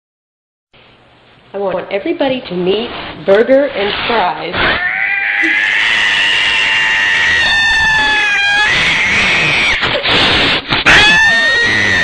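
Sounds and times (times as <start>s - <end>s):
cat yowling: 4.6s - 10.0s, 10.8s - 12.0s.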